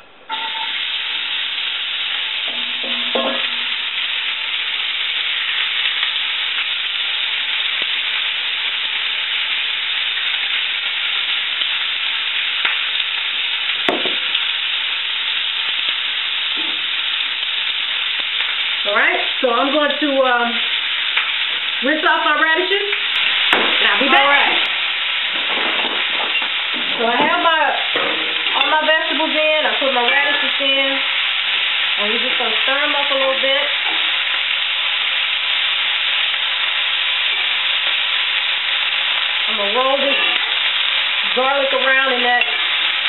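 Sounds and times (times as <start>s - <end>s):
onions frying in oil: 0.3s - 43.0s
knock: 13.9s - 14.3s.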